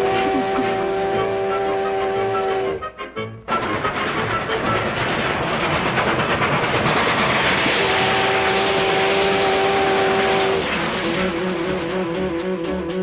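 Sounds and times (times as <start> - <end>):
horn-like blast: 0.0 - 3.7, 7.6 - 13.0
cartoon rushing rattle: 3.5 - 12.1.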